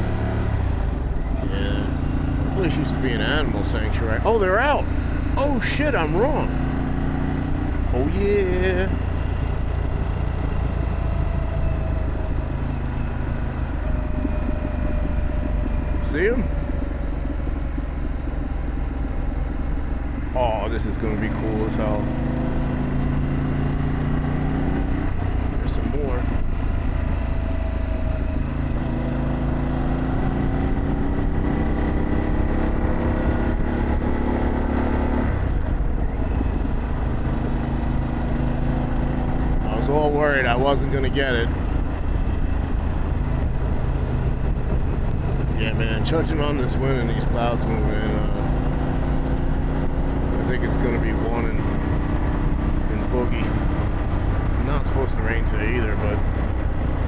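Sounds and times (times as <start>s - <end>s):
motorcycle engine rumbling: 0.0s - 57.0s
wind noise: 22.0s - 50.6s.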